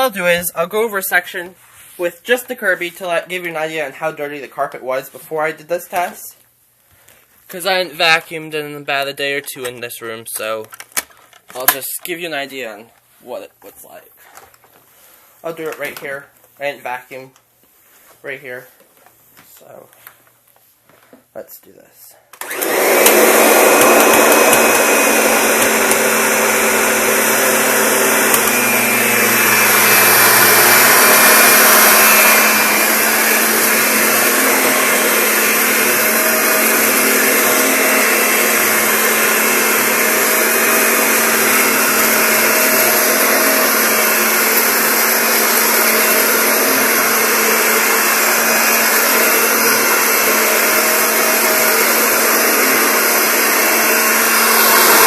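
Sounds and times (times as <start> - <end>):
vacuum cleaner running: 22.4 - 55.0.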